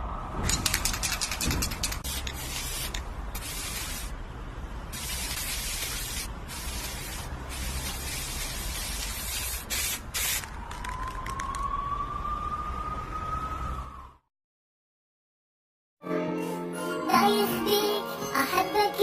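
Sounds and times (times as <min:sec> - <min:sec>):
hiss bursts: 0:01.6 - 0:04.2, 0:04.9 - 0:10.5.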